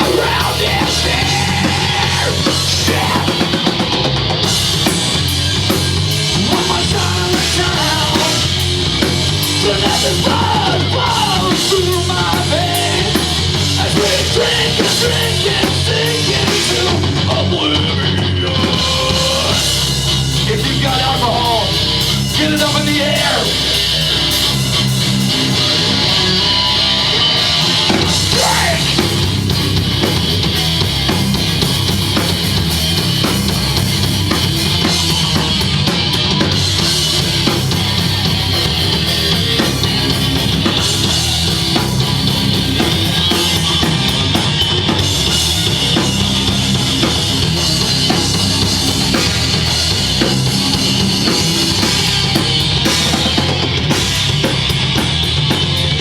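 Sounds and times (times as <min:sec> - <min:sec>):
heavy rock band playing: 0:00.0 - 0:56.0
bass drum and snare: 0:27.4 - 0:56.0.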